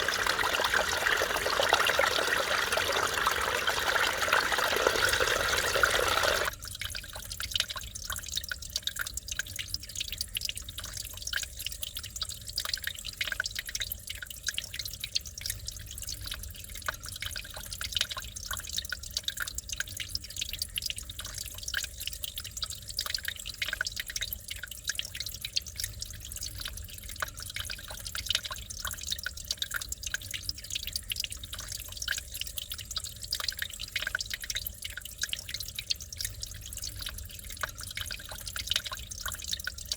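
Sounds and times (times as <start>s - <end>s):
rush of water: 0.0s - 6.5s
stream trickling over rocks: 0.0s - 7.4s.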